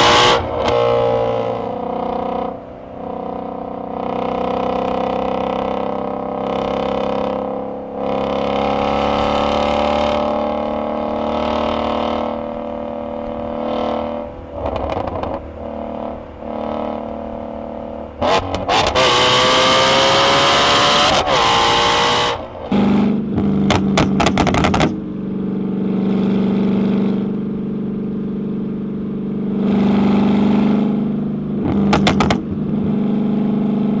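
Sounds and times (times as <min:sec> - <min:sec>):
car engines revving: 0:00.0 - 0:34.0
sharp exhaust pops: 0:22.7 - 0:25.0, 0:31.6 - 0:32.6.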